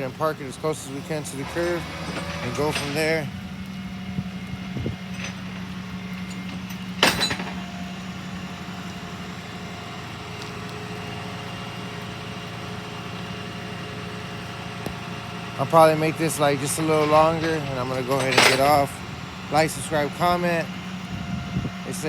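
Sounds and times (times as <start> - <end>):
truck engine running low: 0.0 - 22.0.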